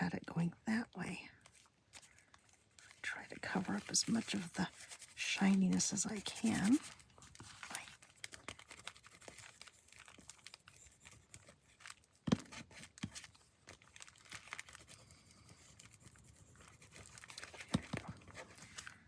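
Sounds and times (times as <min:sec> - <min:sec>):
paper crinkling and rustling: 0:01.4 - 0:19.0.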